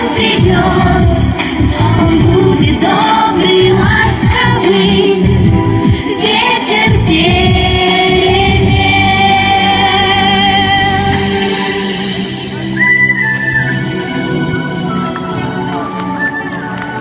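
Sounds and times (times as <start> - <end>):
instrumental backing: 0.1 - 17.0.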